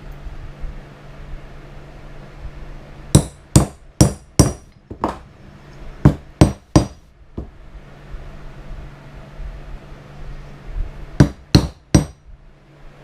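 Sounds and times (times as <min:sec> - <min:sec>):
hammer striking metal tool: 0:03.2 - 0:05.2, 0:06.1 - 0:07.0, 0:11.2 - 0:12.2.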